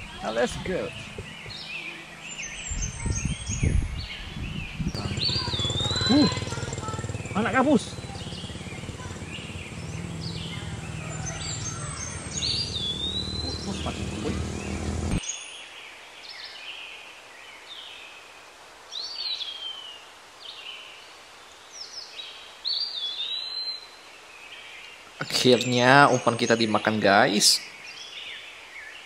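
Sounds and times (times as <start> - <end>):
low steady rumble: 0.0 - 15.2
birds whistling calls: 0.0 - 15.3.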